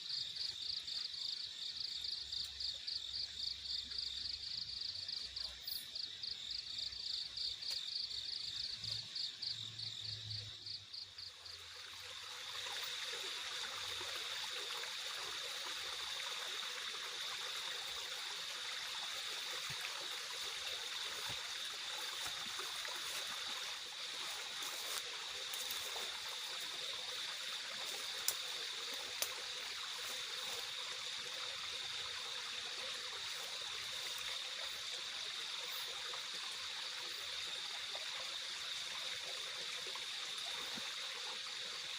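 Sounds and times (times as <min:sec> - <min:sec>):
high insect drone: 0:00.0 - 0:41.9
insects chirping in pulsing rhythm: 0:00.0 - 0:41.9
rushing water: 0:11.2 - 0:41.9.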